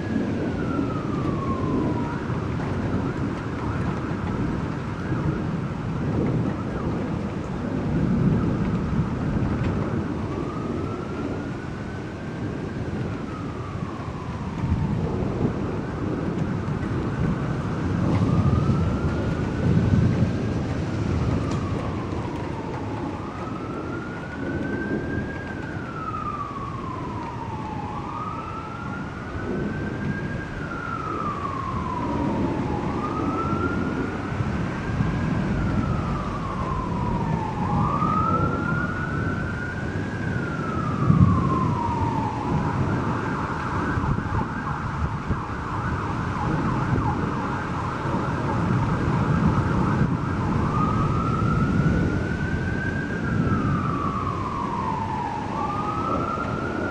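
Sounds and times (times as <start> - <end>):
emergency siren wailing: 0.0 - 56.9
low rumbling noise: 0.0 - 56.9.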